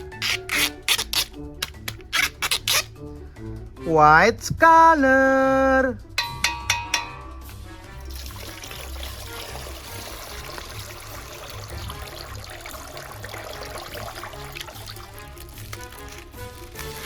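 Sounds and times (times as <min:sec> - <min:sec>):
music with low beat: 0:06.0 - 0:08.0
water pouring and trickling: 0:07.8 - 0:17.0.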